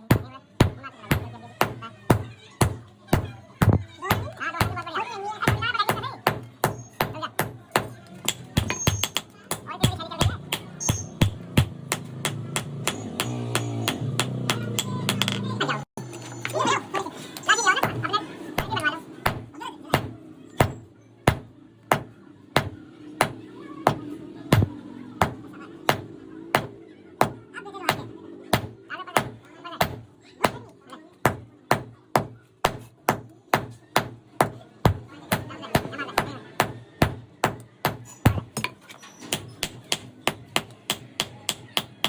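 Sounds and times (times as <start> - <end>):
hammer blows: 5.5 - 15.6.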